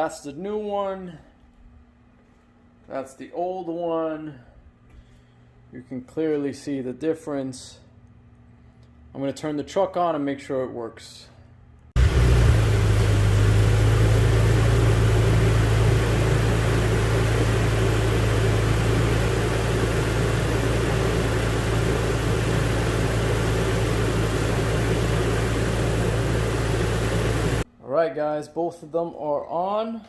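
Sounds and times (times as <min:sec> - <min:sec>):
car engine idling: 0:12.0 - 0:27.6.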